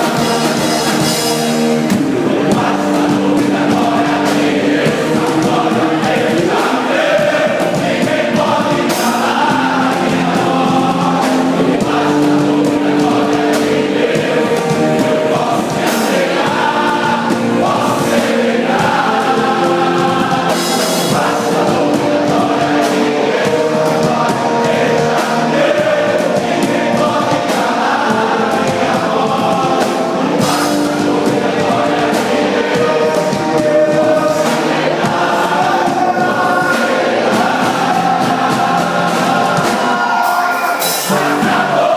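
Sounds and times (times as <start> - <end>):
backing music: 0.0 - 41.9
choir singing gospel: 0.0 - 41.9.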